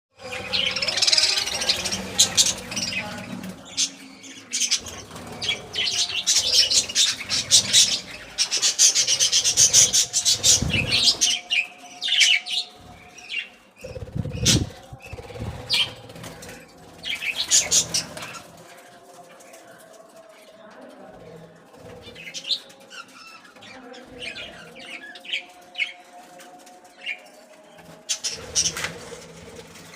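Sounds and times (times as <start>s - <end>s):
budgerigars chattering: 0.2s - 18.4s
wing flutters: 13.8s - 20.1s.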